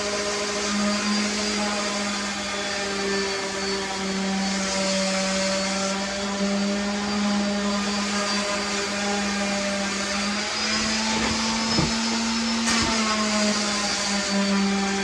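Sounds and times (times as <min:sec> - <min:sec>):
motor humming: 0:09.6 - 0:14.8
light knocks: 0:11.0 - 0:13.0.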